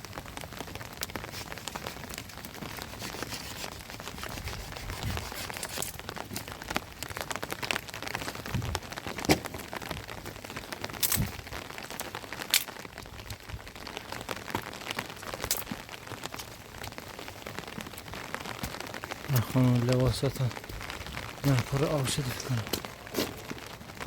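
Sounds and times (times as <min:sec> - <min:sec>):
rain falling: 0:00.0 - 0:24.0.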